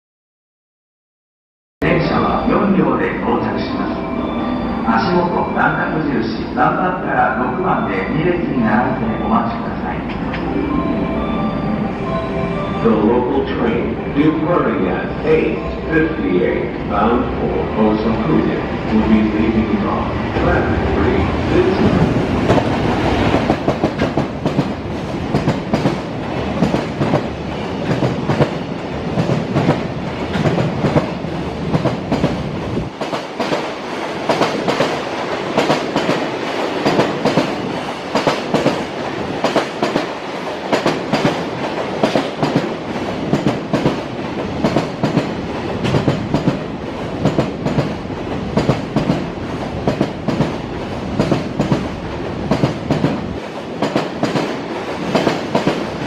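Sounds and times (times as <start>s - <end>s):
deep train rumble: 1.8s - 56.0s
freight train wheels clacking: 21.8s - 56.0s.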